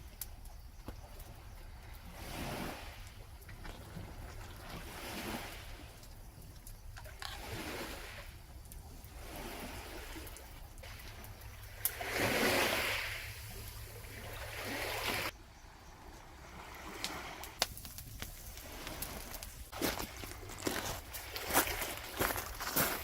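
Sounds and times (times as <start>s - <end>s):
sea waves on a beach: 0.0s - 23.0s.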